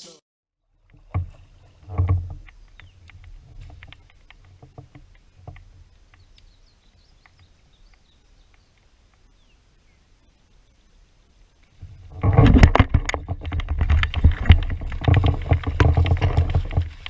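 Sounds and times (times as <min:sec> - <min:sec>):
gear knocking on kayak: 0:12.2 - 0:17.0.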